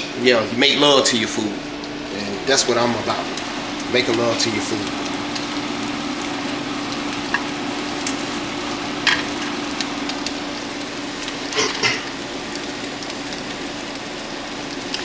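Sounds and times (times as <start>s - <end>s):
food sizzling in pans: 0.0s - 15.0s
utensil clicks on pans: 9.0s - 10.3s.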